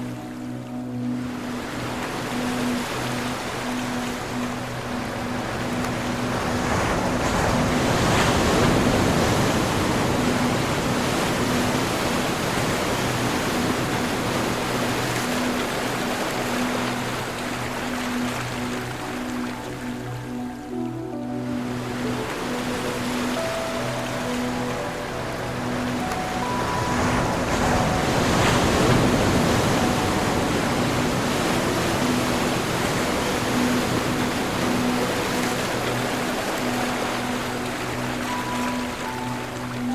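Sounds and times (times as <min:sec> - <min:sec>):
ocean waves washing: 0:00.0 - 0:39.9.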